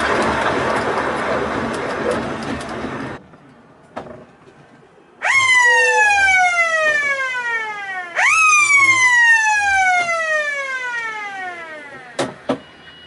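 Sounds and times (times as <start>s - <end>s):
siren wailing: 5.2s - 12.2s.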